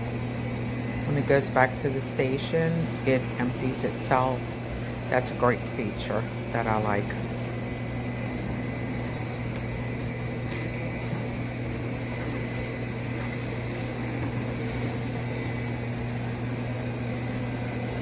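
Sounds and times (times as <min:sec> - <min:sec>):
robot vacuum motor humming: 0:08.3 - 0:18.0.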